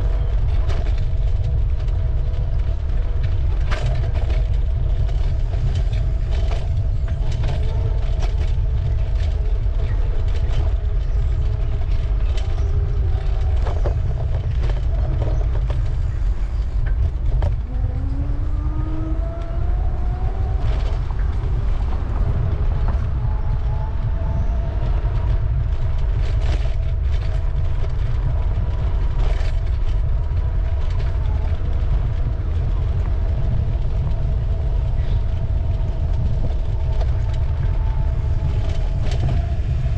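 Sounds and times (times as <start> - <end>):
steady whining tones: 0.0 - 39.9
wind rumble on microphone: 0.0 - 39.9
bicycle clicks and rattles: 0.1 - 23.8, 24.4 - 39.9
tram motor whine rising: 4.1 - 28.1.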